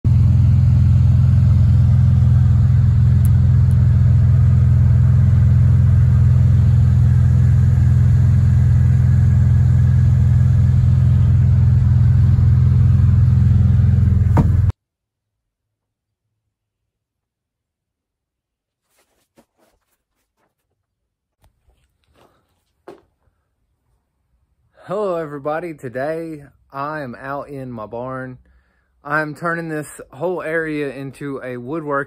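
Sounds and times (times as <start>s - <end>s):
loud low rumble: 0.0s - 14.7s.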